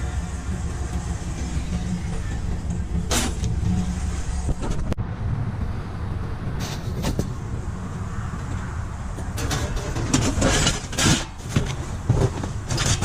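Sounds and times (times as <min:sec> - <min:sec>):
steady low rumble: 0:00.0 - 0:12.7
rustle or scrape: 0:06.6 - 0:07.4, 0:09.4 - 0:13.0
quick clattering noises: 0:09.2 - 0:13.0.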